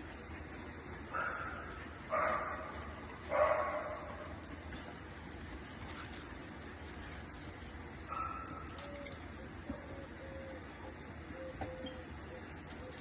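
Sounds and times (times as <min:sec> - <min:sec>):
dog barking: 0:01.1 - 0:04.2, 0:08.1 - 0:08.6.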